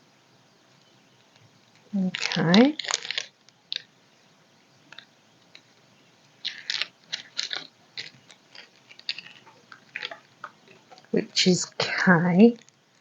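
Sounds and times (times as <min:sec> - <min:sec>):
small plastic clicks and rattles: 0:06.4 - 0:11.2.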